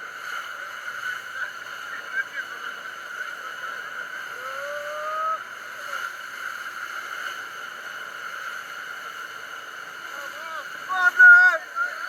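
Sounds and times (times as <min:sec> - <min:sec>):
waterfall rushing: 0:08.9 - 0:12.0.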